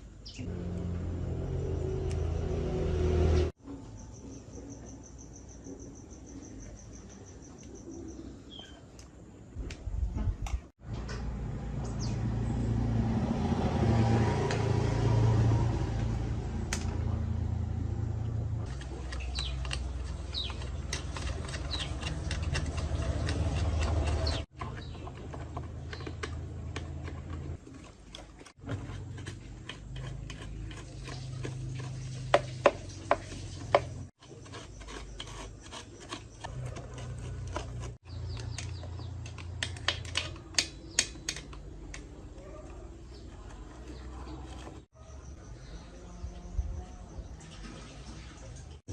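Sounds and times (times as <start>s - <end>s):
motor hum: 0.3s - 3.5s
scraping and rubbing metal: 18.6s - 44.9s.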